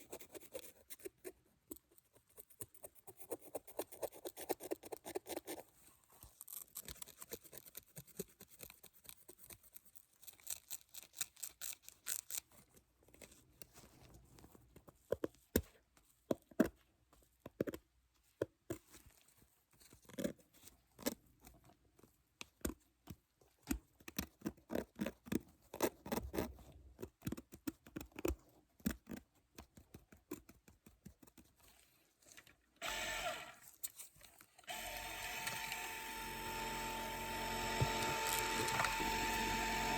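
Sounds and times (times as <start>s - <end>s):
dental drill whirring: 32.8s - 33.6s, 34.7s - 39.9s.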